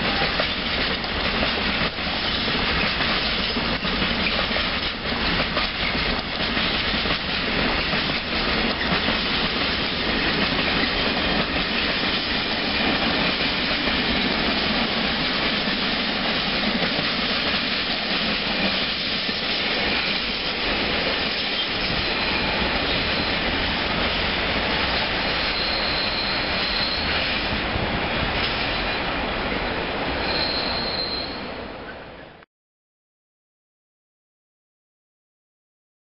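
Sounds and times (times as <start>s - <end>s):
freight train rumbling: 0.0s - 32.4s
high-pitched wheel squeals: 25.4s - 27.3s, 30.2s - 31.6s.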